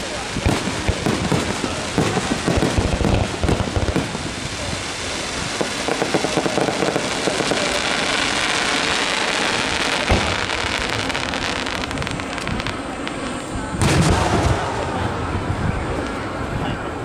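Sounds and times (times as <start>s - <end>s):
fireworks crackling: 0.0s - 17.0s
sharp firework bang: 10.0s - 10.5s, 13.8s - 15.3s
deep firework shell burst: 13.8s - 15.3s.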